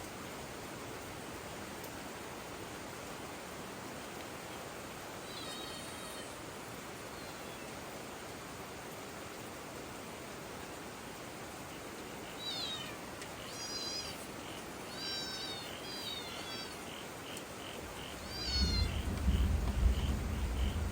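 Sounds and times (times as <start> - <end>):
small animal's high cries: 5.2 - 6.5, 12.3 - 14.3, 14.9 - 16.9, 18.2 - 19.1
faint chirping: 11.7 - 20.9
low rumble: 18.2 - 20.9.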